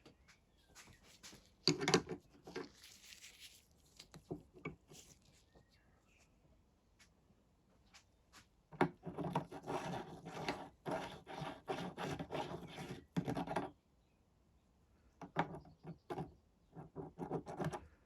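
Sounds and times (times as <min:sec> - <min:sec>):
hands rubbing and scraping parts: 0:00.8 - 0:05.7, 0:08.4 - 0:13.7.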